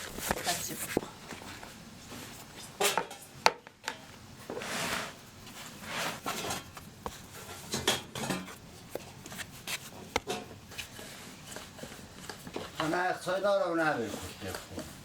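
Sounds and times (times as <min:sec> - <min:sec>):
dishes and utensils clinking: 0:02.8 - 0:03.3, 0:07.4 - 0:08.6.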